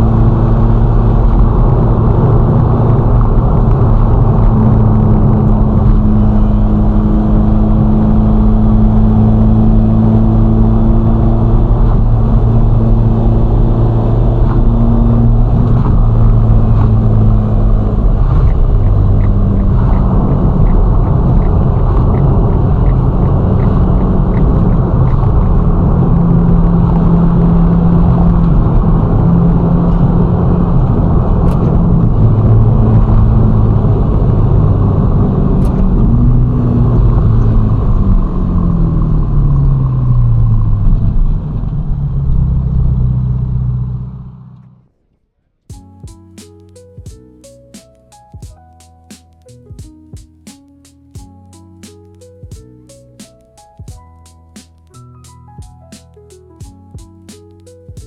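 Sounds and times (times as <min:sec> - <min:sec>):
car engine cruising: 0:00.0 - 0:45.0, 0:45.7 - 0:58.0
road noise: 0:00.0 - 0:45.0, 0:45.7 - 0:58.0
light regular ticking: 0:15.6 - 0:25.8, 0:45.7 - 0:58.0.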